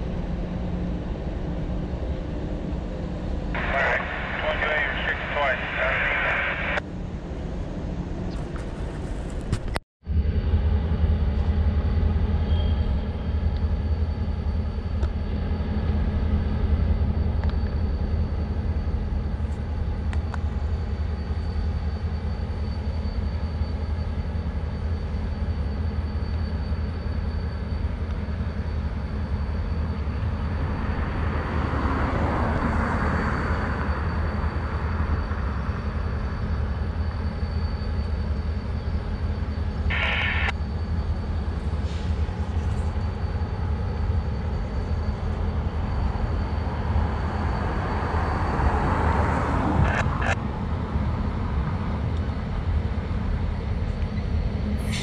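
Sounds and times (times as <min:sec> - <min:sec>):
freight train rumbling: 0:00.0 - 0:55.0
rushing noise: 0:03.5 - 0:06.8, 0:39.0 - 0:40.6, 0:45.7 - 0:50.5.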